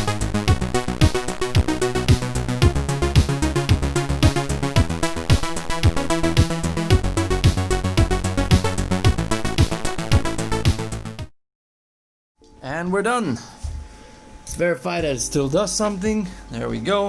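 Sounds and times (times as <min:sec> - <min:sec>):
fast electronic music: 0:00.0 - 0:11.3.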